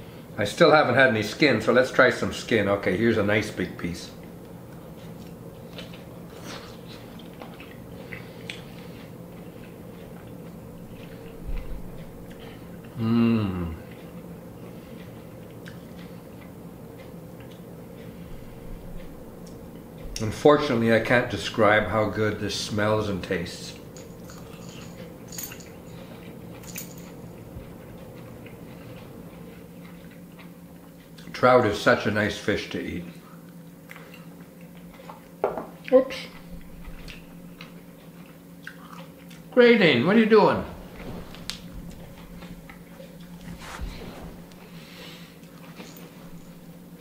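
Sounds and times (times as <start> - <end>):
low room hum: 0.0 - 47.0
man chewing: 4.2 - 20.2, 23.7 - 31.4, 33.1 - 39.6, 40.8 - 47.0.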